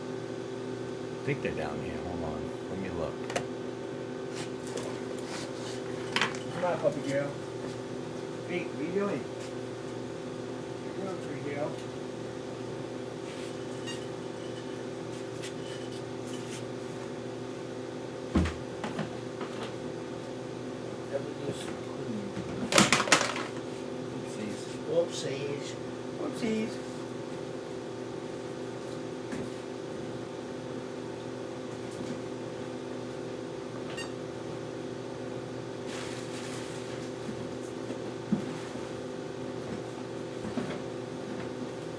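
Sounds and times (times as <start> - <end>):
machine hum: 0.0 - 4.2
steady low hum: 0.0 - 9.3.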